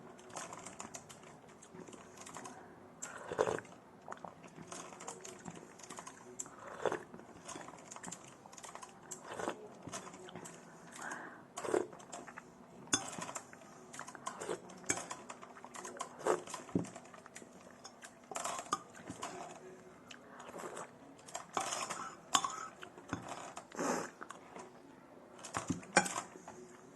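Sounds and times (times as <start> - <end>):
close-up eating sounds: 0.0 - 26.9
spoon scraping a bowl: 21.5 - 24.1.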